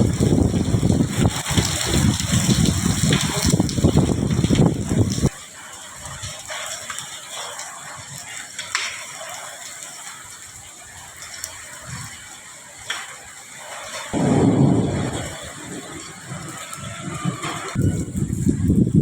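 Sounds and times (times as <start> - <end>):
hail ticking: 0.0 - 18.6
rain hissing: 0.0 - 19.0
loud low rumbling: 14.2 - 16.6.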